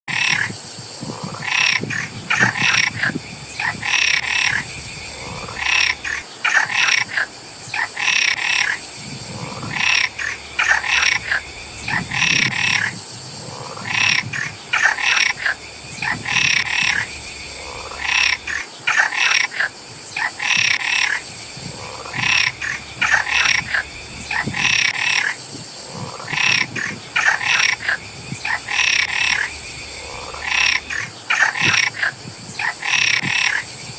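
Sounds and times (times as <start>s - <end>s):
frogs croaking: 0.1s - 33.9s
high-pitched background hiss: 0.1s - 33.9s.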